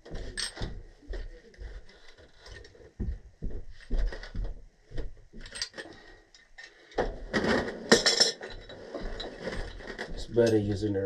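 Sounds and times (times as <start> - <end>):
metal clattering: 7.3 - 10.7.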